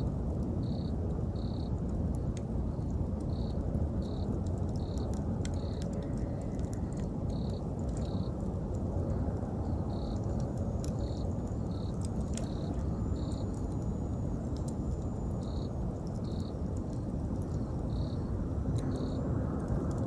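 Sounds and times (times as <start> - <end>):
campfire crackling: 0.0 - 20.0
insect chirping: 0.6 - 1.7, 9.7 - 17.0, 17.6 - 19.3.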